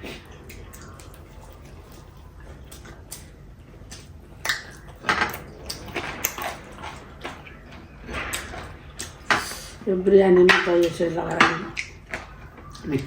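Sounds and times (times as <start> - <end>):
wet chewing smacks: 0.0 - 7.6.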